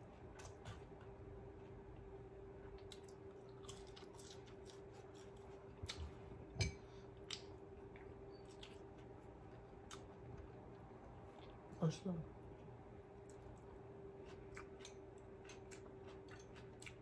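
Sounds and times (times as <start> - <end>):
crunchy chewing of fried food: 0.0 - 11.7, 12.4 - 17.0
faint steady hum: 0.0 - 17.0.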